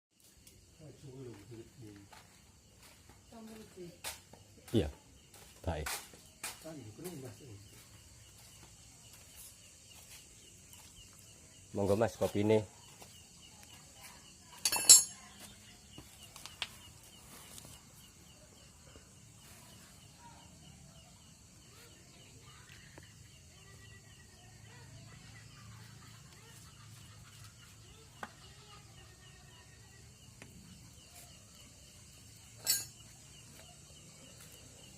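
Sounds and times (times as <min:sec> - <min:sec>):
insect trill: 0:00.2 - 0:34.9.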